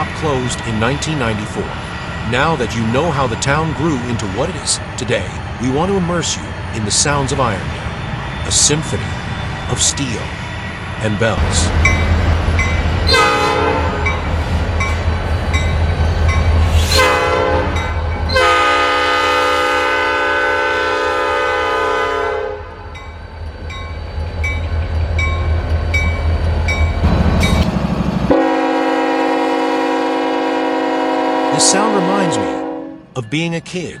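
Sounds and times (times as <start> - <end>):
railroad crossing bell dinging: 0.0 - 4.9, 8.6 - 19.2, 22.5 - 29.6
locomotive engine rumble: 0.0 - 34.0
locomotive air horn: 13.1 - 14.1, 16.8 - 22.9, 28.3 - 33.1.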